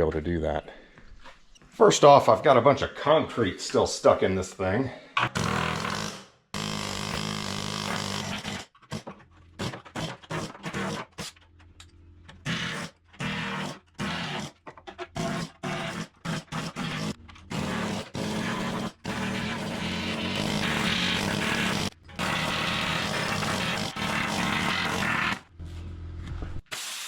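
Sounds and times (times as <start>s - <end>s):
power tool breaking concrete: 5.2s - 11.4s, 12.4s - 25.5s.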